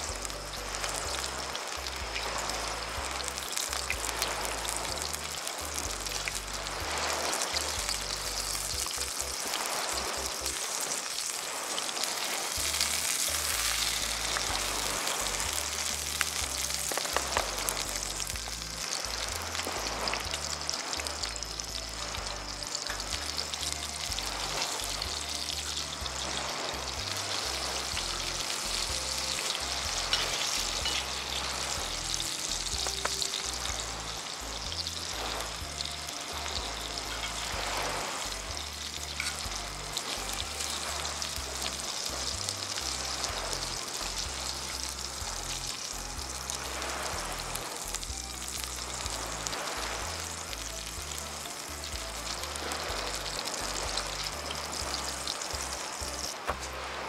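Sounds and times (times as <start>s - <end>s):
food sizzling in skillets: 0.0s - 57.0s
knife and fork clinking: 30.1s - 31.2s.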